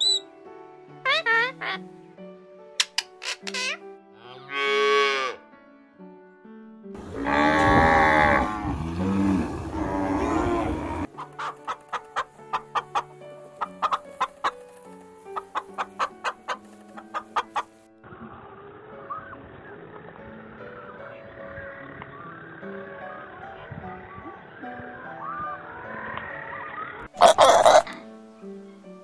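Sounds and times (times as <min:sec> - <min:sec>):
background music: 0:00.0 - 0:29.0
chicken drawn-out call: 0:10.2 - 0:14.6, 0:27.2 - 0:28.0
chicken clucks: 0:11.2 - 0:17.7, 0:27.2 - 0:28.0.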